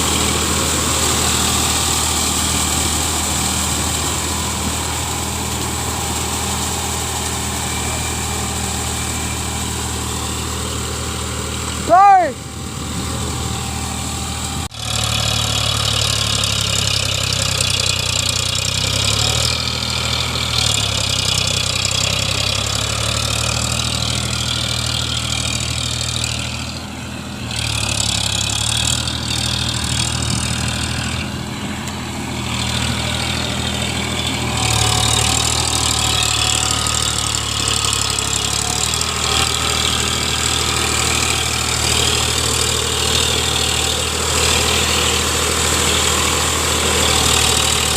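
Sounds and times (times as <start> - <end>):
tractor diesel engine idling: 0.0 - 47.9.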